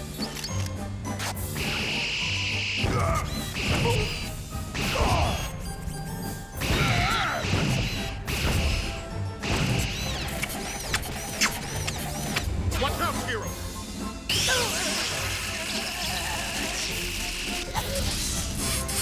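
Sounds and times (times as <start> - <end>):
action background music: 0.0 - 19.0
cartoon crashes and blows: 6.6 - 10.0, 14.3 - 17.0.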